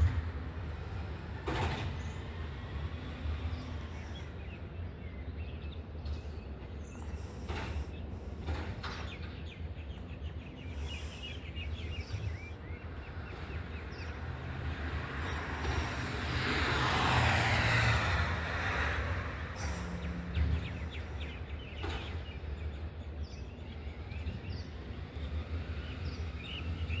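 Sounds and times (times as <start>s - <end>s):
low engine rumble: 0.0s - 17.2s
birds chirping: 1.9s - 16.1s, 18.8s - 27.0s
vehicle passing by: 11.8s - 22.4s.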